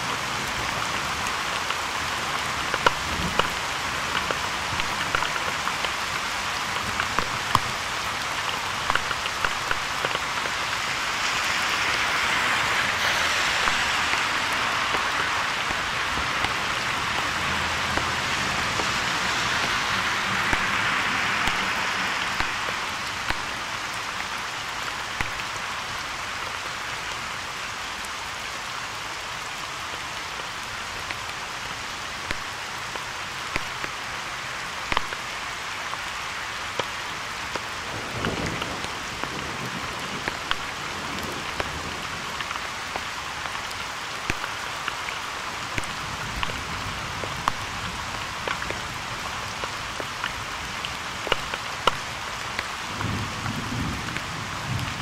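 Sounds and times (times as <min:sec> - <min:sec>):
raindrops ticking near microphone: 0:00.0 - 0:55.0
rainfall hissing: 0:00.0 - 0:55.0.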